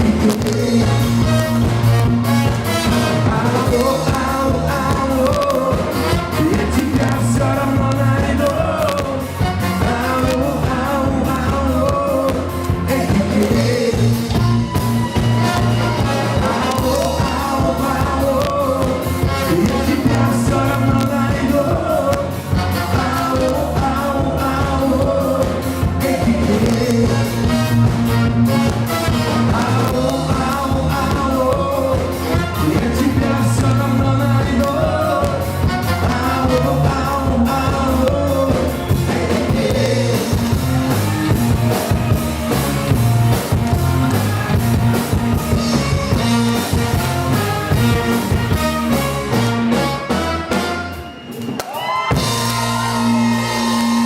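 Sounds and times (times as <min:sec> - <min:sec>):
lead vocal singing: 0:00.0 - 0:01.9, 0:02.7 - 0:42.2
live band playing pop-rock: 0:00.0 - 0:54.0.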